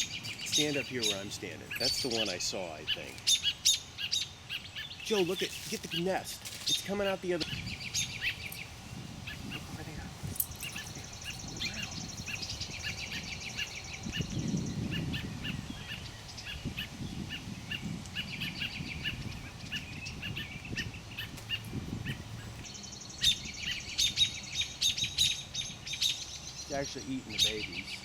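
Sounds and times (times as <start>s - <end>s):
small birds short chirps: 0.0s - 28.0s.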